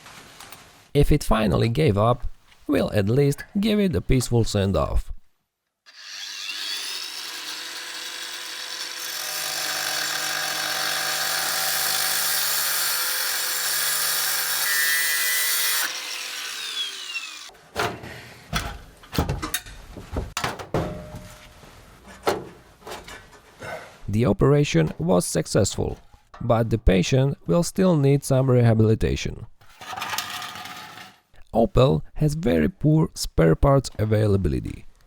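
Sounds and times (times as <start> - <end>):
power tool cutting metal pipe: 5.9 - 17.5
sharp knocks and clatters: 17.8 - 21.5.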